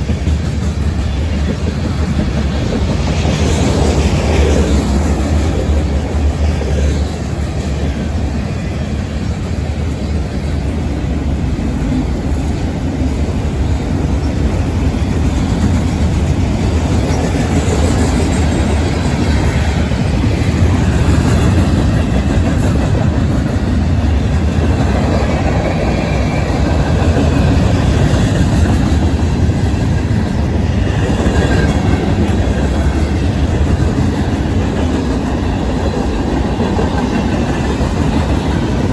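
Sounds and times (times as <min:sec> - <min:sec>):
freight train wheels on rail: 0:00.0 - 0:38.9.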